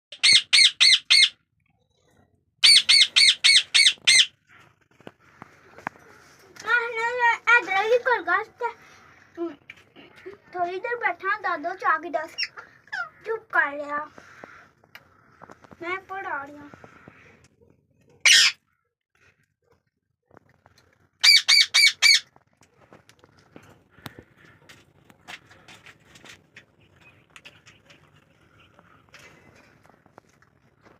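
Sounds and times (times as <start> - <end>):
parakeet squawking: 0.1 - 1.4, 2.6 - 4.4, 12.3 - 13.2, 18.2 - 18.6, 21.2 - 22.3.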